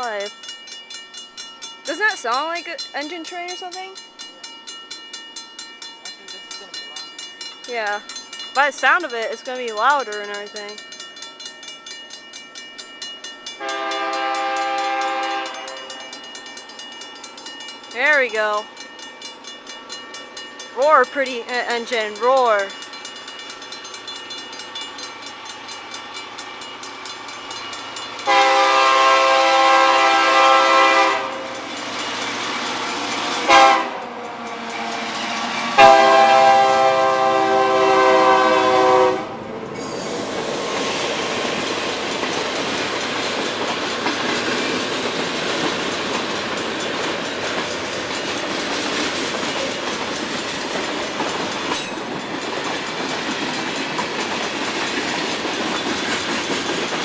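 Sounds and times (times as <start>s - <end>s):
wheels clicking over rail joints: 0.0s - 37.3s, 39.6s - 57.0s
train rumbling past: 0.0s - 57.0s
locomotive air horn blasts: 13.6s - 15.9s, 28.2s - 31.5s, 33.4s - 34.1s, 35.6s - 39.4s.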